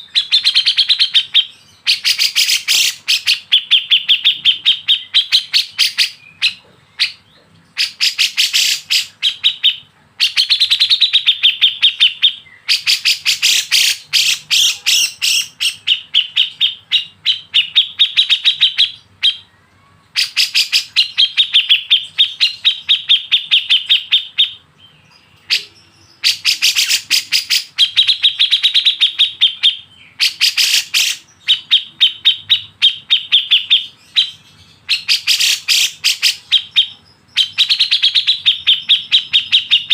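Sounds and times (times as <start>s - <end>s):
bird chirping rapidly: 0.0s - 39.9s.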